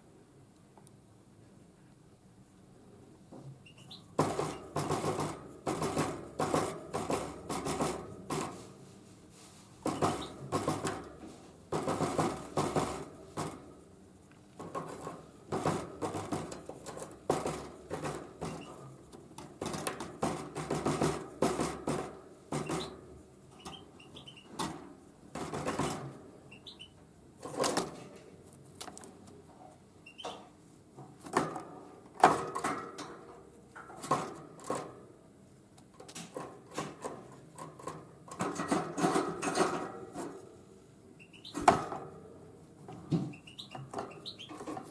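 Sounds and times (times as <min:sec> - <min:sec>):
faint short bird chirps: 0:03.6 - 0:04.1.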